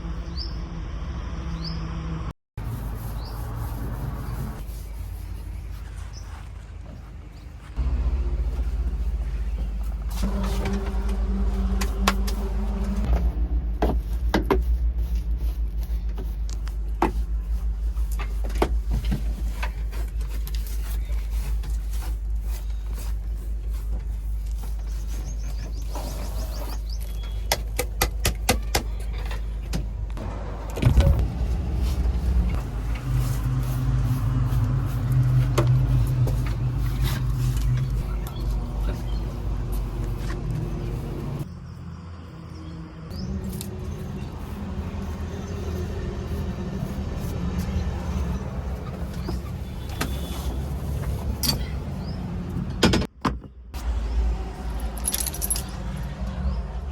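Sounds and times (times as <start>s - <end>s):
diesel engine running: 7.6s - 20.2s, 30.0s - 41.5s, 42.3s - 52.8s.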